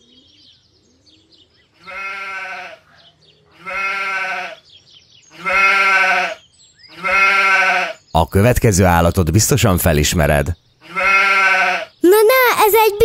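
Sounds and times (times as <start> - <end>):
faint bird chirps: 0.0 - 9.4
sheep bleating: 1.8 - 2.9, 3.5 - 4.6, 5.3 - 8.1, 10.8 - 12.0.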